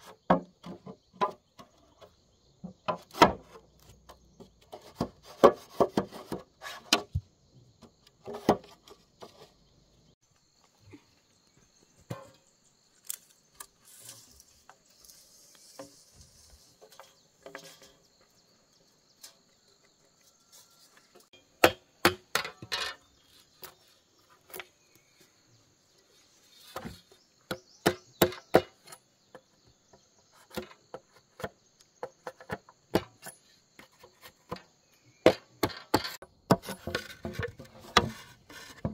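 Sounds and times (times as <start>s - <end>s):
insect trill: 10.2s - 21.5s.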